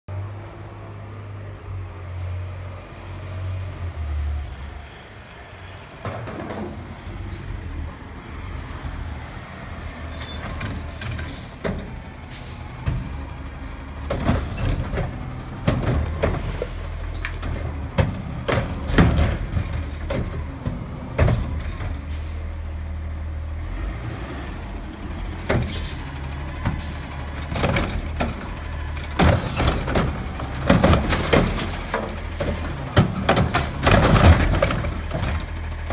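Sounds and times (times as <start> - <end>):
diesel truck engine running: 4.6 - 35.9
high squeals: 10.0 - 12.6
recyclables clanking and crashing: 14.0 - 22.4, 26.7 - 35.9.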